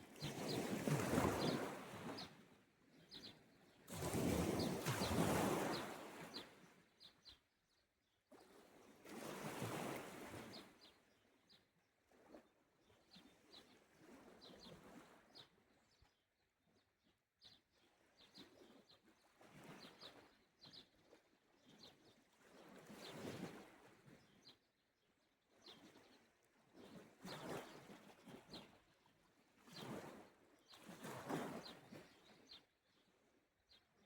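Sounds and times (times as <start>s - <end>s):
small sea waves washing ashore: 3.9s - 6.2s.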